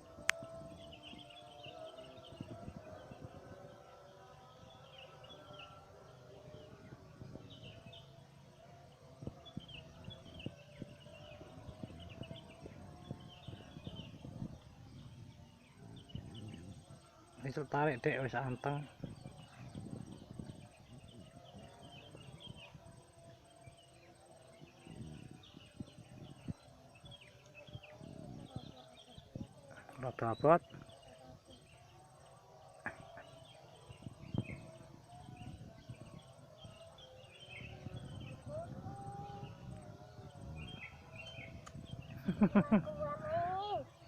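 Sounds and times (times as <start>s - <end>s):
bird chirps: 32.8s - 44.0s.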